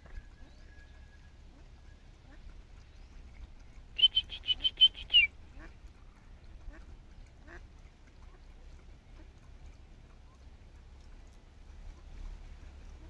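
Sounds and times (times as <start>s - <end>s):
bird calling: 3.9s - 5.7s.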